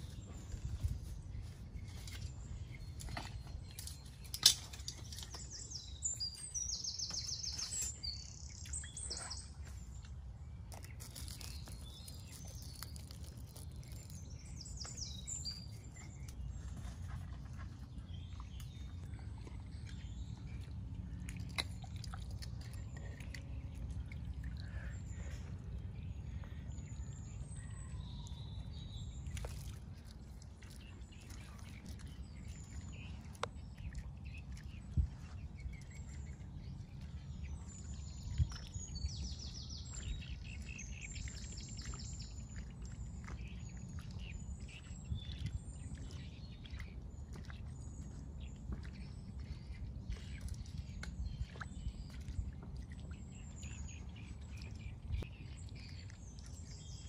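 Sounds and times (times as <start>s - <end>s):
low steady rumble: 0.0s - 57.0s
small birds chirping trills: 0.0s - 57.0s.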